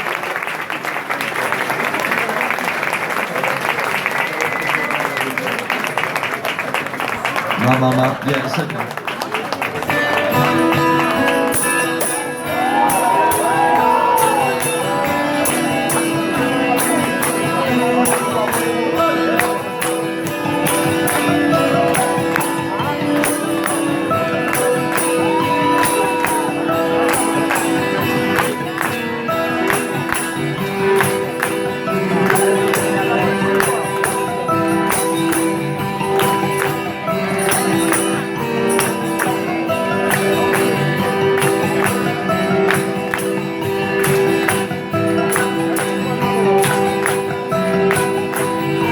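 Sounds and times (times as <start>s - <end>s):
rock band playing: 9.8s - 48.9s.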